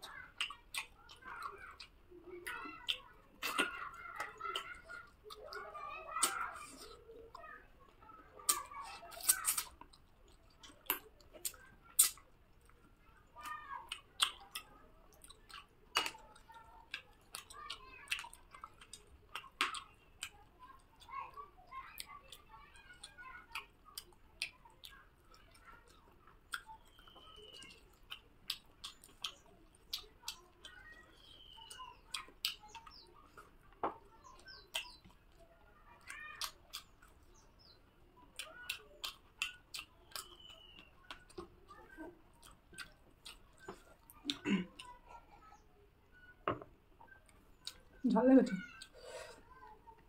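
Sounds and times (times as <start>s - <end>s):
person chewing food: 0.0s - 45.6s, 47.0s - 48.0s
bird chirping: 26.6s - 28.2s, 28.8s - 33.5s, 34.1s - 35.2s, 36.4s - 44.6s.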